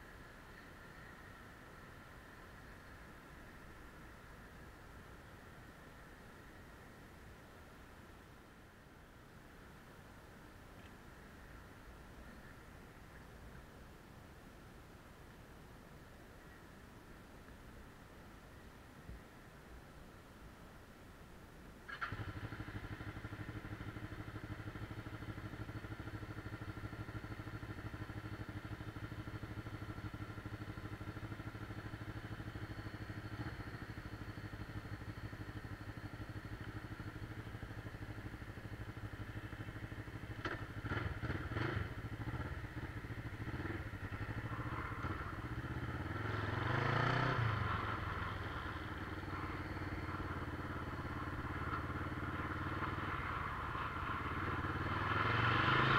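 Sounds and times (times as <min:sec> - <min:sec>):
motorcycle engine idling: 0:21.9 - 0:55.9.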